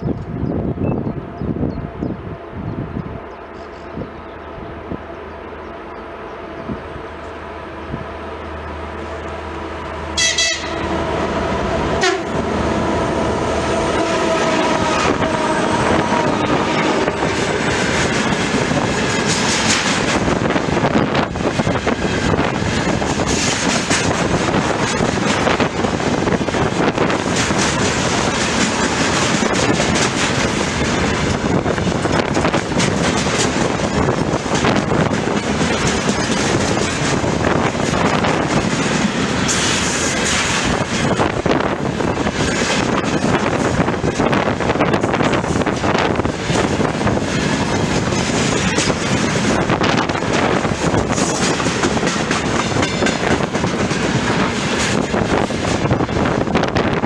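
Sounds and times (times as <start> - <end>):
locomotive horn: 9.2 - 17.8
wagon wheels clattering over rail joints: 32.2 - 41.2.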